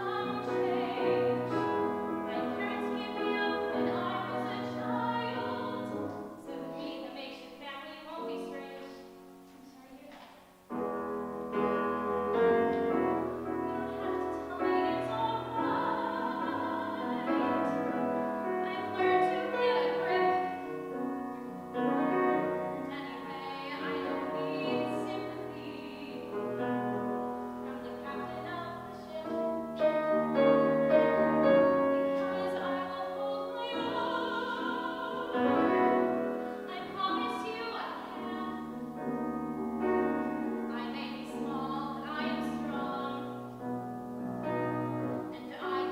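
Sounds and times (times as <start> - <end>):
person singing with vibrato: 0.0 - 7.3, 12.3 - 20.8, 22.4 - 27.0, 27.6 - 38.9
piano accompaniment: 0.0 - 9.8, 10.5 - 45.9.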